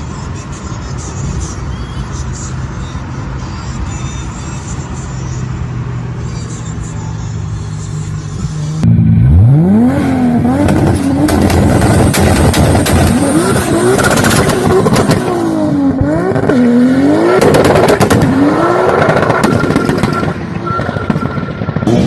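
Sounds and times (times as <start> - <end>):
car engine revving: 7.4 - 22.0
exhaust pops and crackles: 10.6 - 16.5, 17.4 - 22.0.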